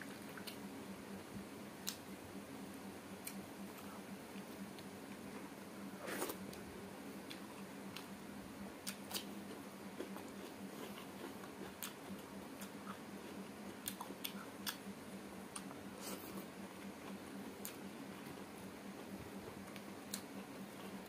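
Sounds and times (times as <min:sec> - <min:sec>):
faint steady hum: 0:00.0 - 0:21.0
person chewing meat: 0:08.8 - 0:14.9.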